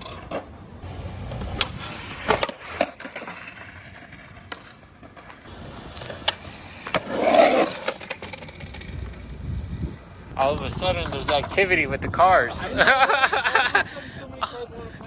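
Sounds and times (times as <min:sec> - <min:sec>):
skateboard clacking on ground: 0:00.0 - 0:11.8
skateboard wheels rolling on pavement: 0:00.0 - 0:15.0.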